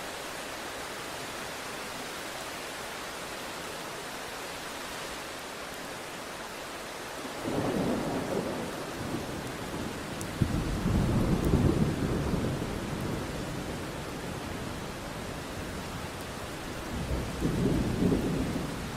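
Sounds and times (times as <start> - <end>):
steady rain hiss: 0.0 - 18.9
low thunder rumble: 7.4 - 13.8.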